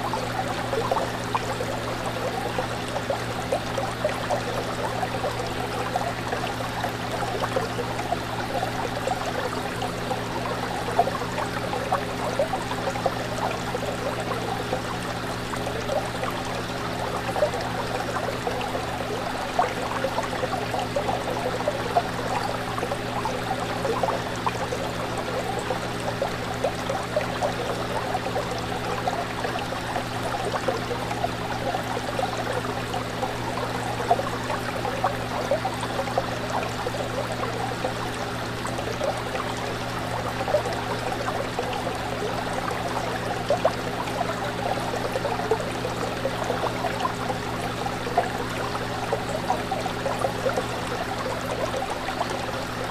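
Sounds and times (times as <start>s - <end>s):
aquarium water bubbling: 0.0s - 52.9s.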